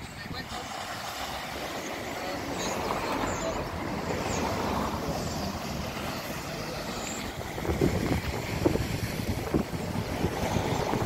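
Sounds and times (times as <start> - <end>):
sea: 0.0 - 11.0
strong wind on microphone: 7.3 - 11.0.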